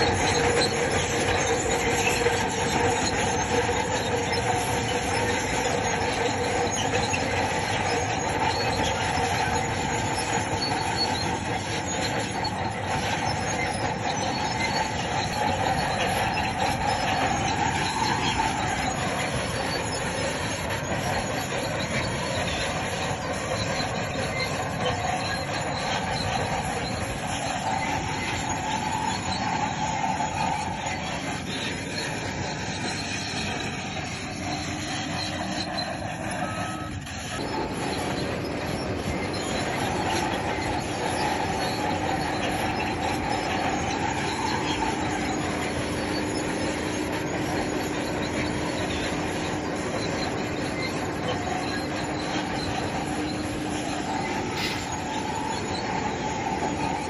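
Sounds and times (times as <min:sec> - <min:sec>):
bulldozer engine under load: 0:00.0 - 0:57.0
metallic squeal of steel tracks: 0:00.0 - 0:57.0.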